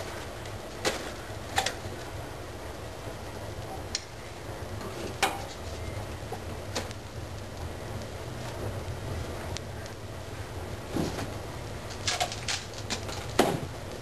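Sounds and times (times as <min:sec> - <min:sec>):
low steady rumble: 0:00.0 - 0:14.0
firewood cracking: 0:05.1 - 0:10.0, 0:10.7 - 0:14.0.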